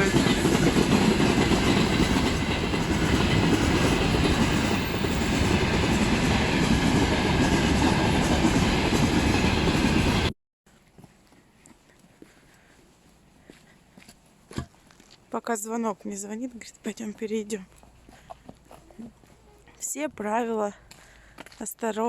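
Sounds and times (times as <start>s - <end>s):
train rumbling past: 0.0s - 10.3s
wheels clattering on rails: 0.0s - 10.3s.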